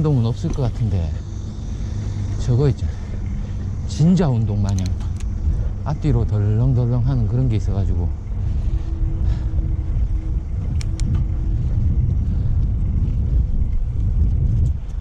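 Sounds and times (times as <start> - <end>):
faint steady hum: 0.0 - 15.0
wind buffeting microphone: 0.0 - 15.0
small sharp clicks: 4.6 - 5.4, 10.7 - 11.2.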